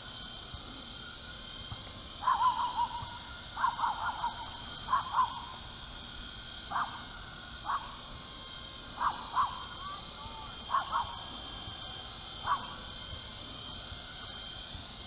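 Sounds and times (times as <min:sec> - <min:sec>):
rc helicopter motor whine: 0:00.0 - 0:15.0
wavering animal calls: 0:02.2 - 0:05.6, 0:09.0 - 0:11.3, 0:12.4 - 0:12.8.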